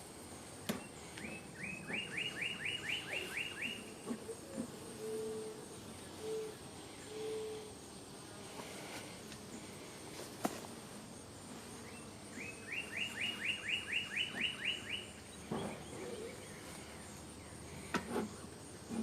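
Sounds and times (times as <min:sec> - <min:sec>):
songbird chirping rising notes: 0:00.8 - 0:03.9, 0:11.8 - 0:16.7.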